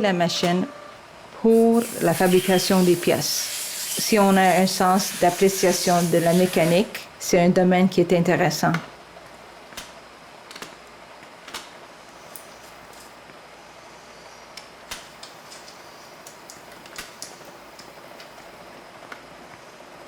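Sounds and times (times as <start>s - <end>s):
machine shop hum: 0.0s - 7.2s.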